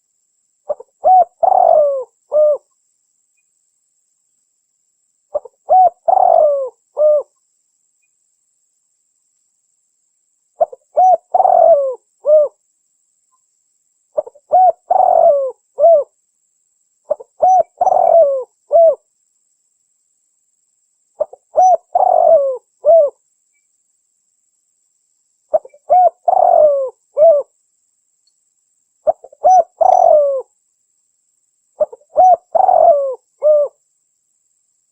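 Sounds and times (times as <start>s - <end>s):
dove cooing: 0.7s - 2.7s, 5.3s - 7.3s, 10.6s - 12.6s, 14.2s - 16.1s, 17.1s - 19.0s, 21.2s - 23.2s, 25.5s - 27.5s, 29.0s - 30.5s, 31.8s - 33.8s.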